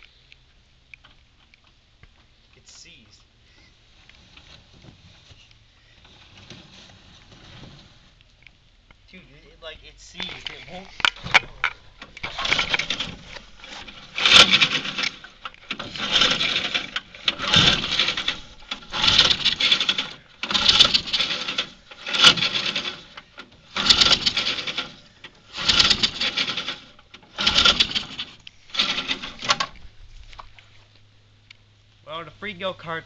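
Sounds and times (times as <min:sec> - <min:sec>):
recoil starter pulls rasping: 0:10.2 - 0:30.6.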